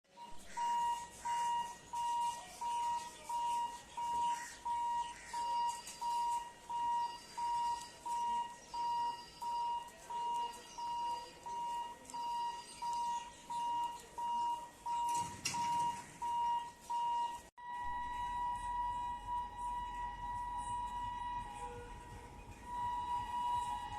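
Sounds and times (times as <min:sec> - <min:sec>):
electronic warning beeper: 0:00.1 - 0:23.9
faint background noise: 0:00.1 - 0:23.9
steady two-note tone: 0:17.6 - 0:23.9.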